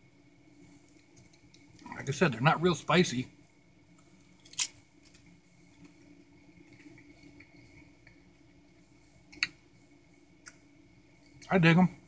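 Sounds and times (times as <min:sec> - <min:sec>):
faint room hum: 0:00.0 - 0:12.0
quiet chewing of food: 0:03.4 - 0:11.5.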